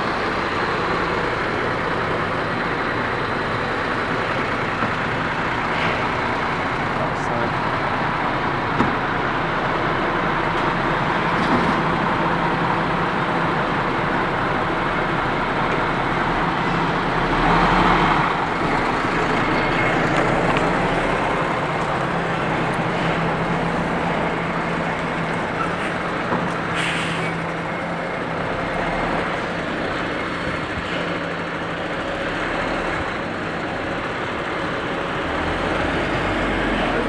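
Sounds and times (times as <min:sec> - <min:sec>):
road traffic noise: 0:00.0 - 0:37.0
vehicle engine running: 0:00.0 - 0:37.0.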